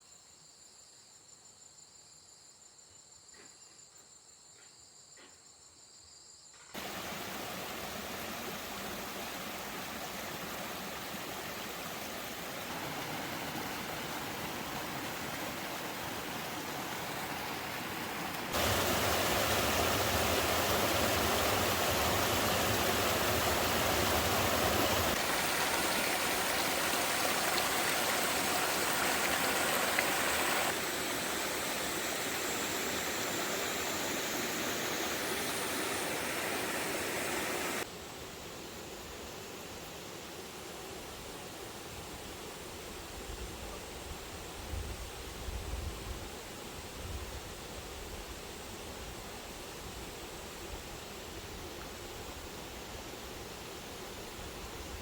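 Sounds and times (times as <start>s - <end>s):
rushing water: 6.8s - 37.9s.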